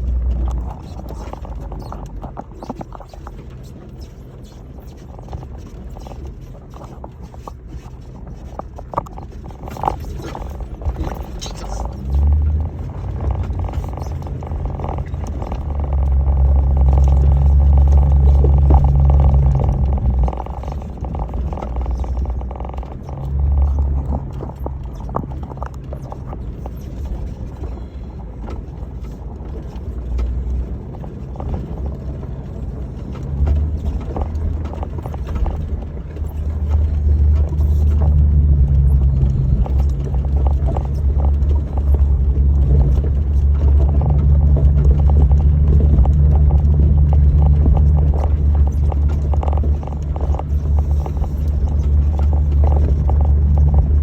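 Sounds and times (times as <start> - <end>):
engine running at low speed: 0.0 - 54.0
vehicle rattling and knocking: 0.0 - 54.0.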